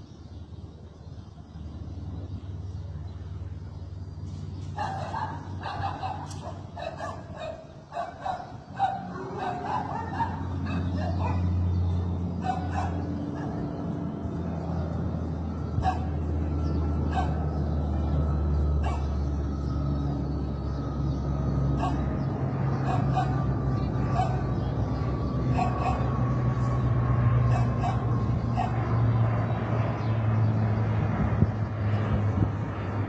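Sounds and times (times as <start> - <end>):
turboprop aircraft engines droning: 0.0 - 33.0
dog barking: 4.8 - 11.5, 12.4 - 13.6, 15.8 - 16.2, 17.1 - 17.4, 18.8 - 19.1, 21.8 - 22.1, 22.8 - 23.5, 24.1 - 24.5, 25.5 - 26.1, 27.4 - 28.8.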